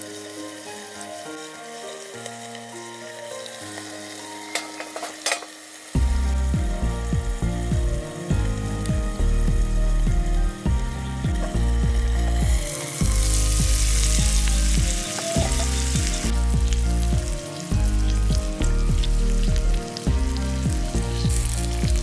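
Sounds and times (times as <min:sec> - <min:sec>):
meat sizzling: 0:00.0 - 0:22.0
background music with beat: 0:06.0 - 0:22.0.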